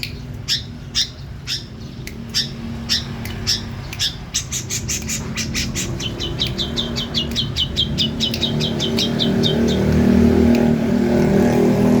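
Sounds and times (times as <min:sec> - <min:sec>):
bird calling rapid falling notes: 0:00.0 - 0:10.8.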